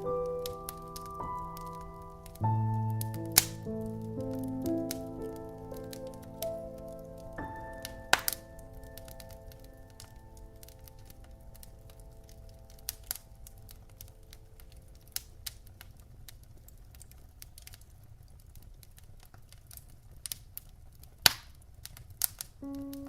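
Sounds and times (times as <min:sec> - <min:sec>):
piano notes: 0:00.0 - 0:15.5, 0:22.6 - 0:23.0
fire popping: 0:00.0 - 0:23.0
wood fire crackling: 0:00.0 - 0:23.0.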